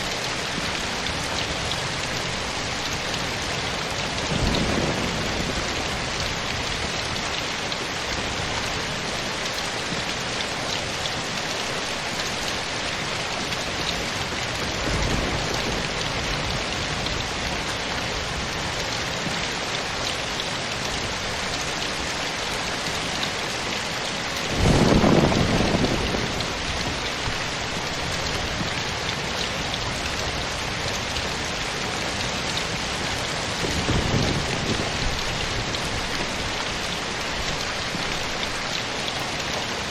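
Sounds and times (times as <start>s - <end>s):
steady rain falling: 0.0s - 39.9s
low rumble of thunder: 3.7s - 7.4s, 14.2s - 19.4s, 24.5s - 31.4s, 32.2s - 38.4s.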